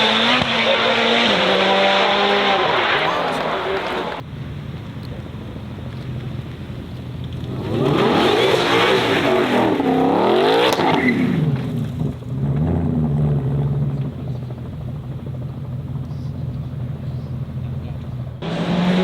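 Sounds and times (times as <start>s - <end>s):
car engine at full throttle: 0.0s - 19.0s.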